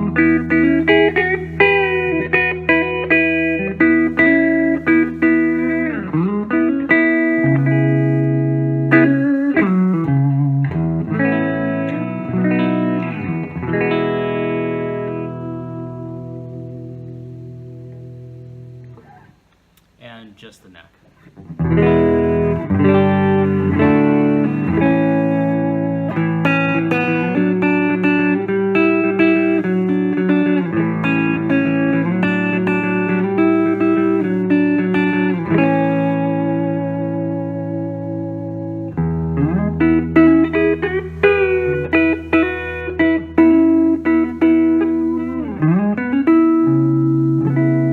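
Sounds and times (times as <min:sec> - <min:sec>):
clean electric guitar chords: 0:00.0 - 0:20.0, 0:21.2 - 0:47.9.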